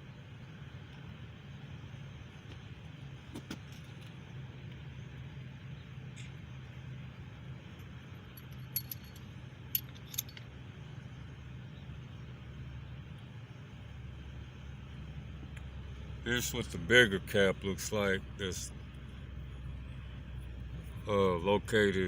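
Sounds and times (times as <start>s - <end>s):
steady low hum: 0.0s - 22.0s
metal clinks of bolts and caps: 7.8s - 10.6s.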